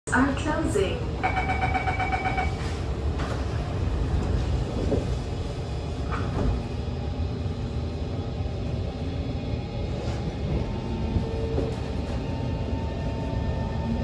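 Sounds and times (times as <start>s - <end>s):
low train rumble: 0.1s - 14.0s
train doors sliding shut: 6.0s - 6.7s.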